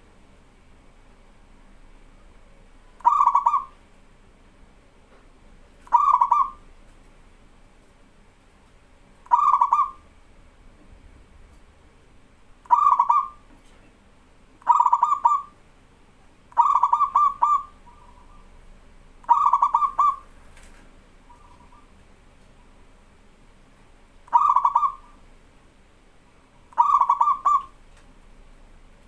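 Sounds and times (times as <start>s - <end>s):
dove cooing: 3.0s - 3.8s, 5.8s - 6.7s, 9.2s - 10.1s, 12.7s - 13.5s, 14.6s - 15.6s, 16.5s - 22.0s, 24.2s - 25.2s, 26.7s - 27.8s.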